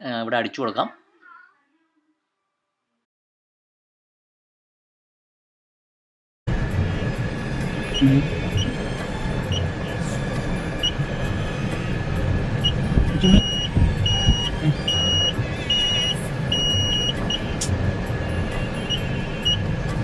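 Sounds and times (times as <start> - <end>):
car engine idling: 6.5 - 20.0
keypad beeps: 12.6 - 17.4.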